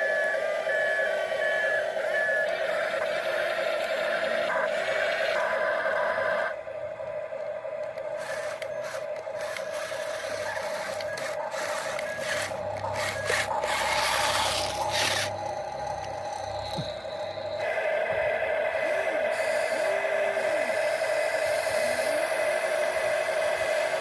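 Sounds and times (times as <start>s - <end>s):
steady high whine: 0.0s - 24.0s
toy excavator bucket scraping: 8.2s - 15.4s.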